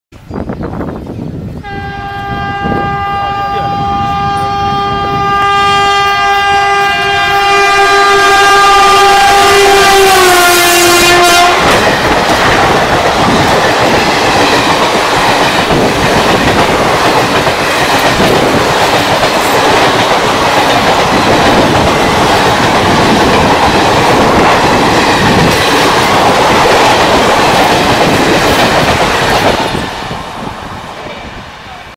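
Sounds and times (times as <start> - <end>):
train horn: 1.6 - 11.8
train wheels clattering on rails: 11.4 - 30.2.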